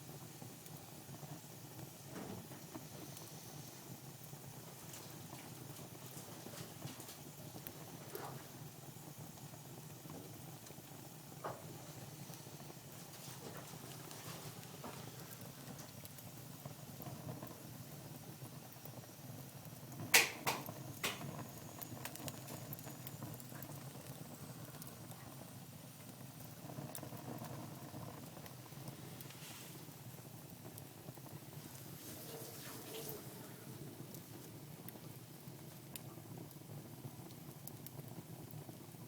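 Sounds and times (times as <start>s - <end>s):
wood fire crackling: 0.0s - 39.0s
sharp loud pops: 20.1s - 21.3s.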